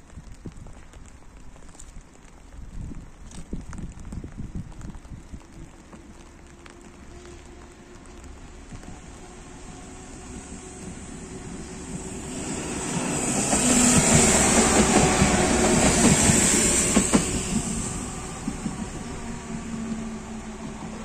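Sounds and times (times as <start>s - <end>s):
train rumble and wheel clatter: 4.2s - 21.0s.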